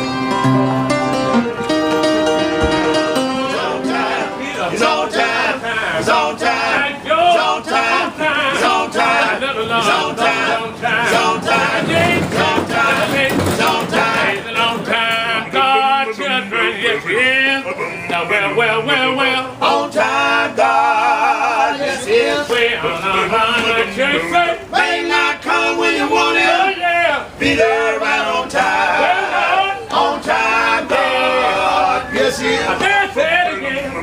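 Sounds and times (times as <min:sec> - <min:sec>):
instrumental chords: 0:00.0 - 0:05.5
man singing gospel: 0:03.4 - 0:34.0.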